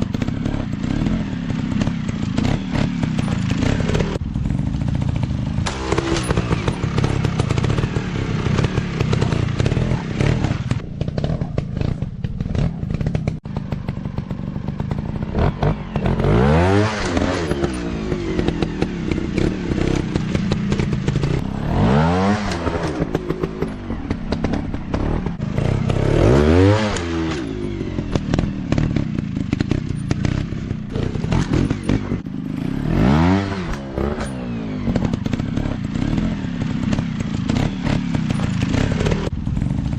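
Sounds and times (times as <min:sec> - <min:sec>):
dirt bike engines revving: 0:00.0 - 0:39.9.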